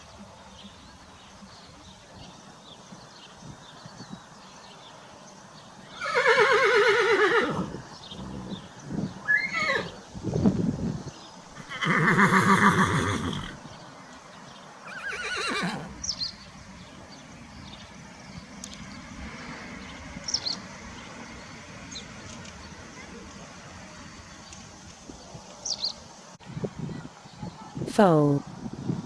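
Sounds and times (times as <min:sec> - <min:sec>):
horse whinnying: 0:06.0 - 0:08.6, 0:09.2 - 0:10.0, 0:11.6 - 0:13.6, 0:14.8 - 0:16.0.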